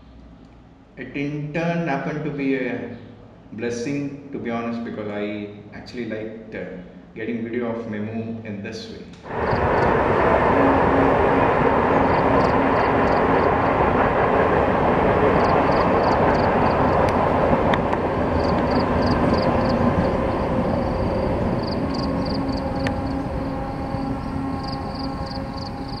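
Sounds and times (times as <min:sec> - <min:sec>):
train wheels rushing on rail: 0:09.3 - 0:26.0.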